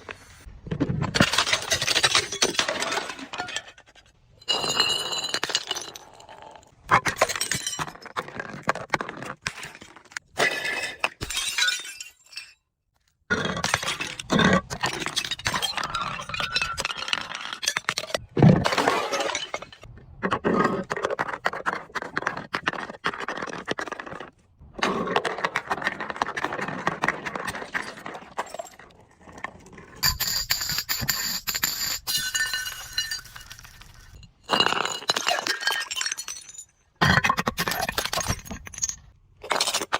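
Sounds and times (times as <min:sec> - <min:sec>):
glass bottles crushed and shattering: 0:01.1 - 0:03.8, 0:04.4 - 0:08.6, 0:10.3 - 0:12.7, 0:13.3 - 0:19.9, 0:30.0 - 0:39.9.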